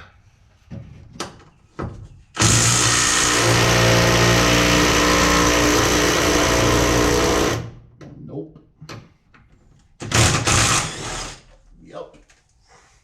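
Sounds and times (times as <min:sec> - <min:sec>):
power wrench buzzing rattle: 0:02.4 - 0:07.7, 0:10.0 - 0:11.5.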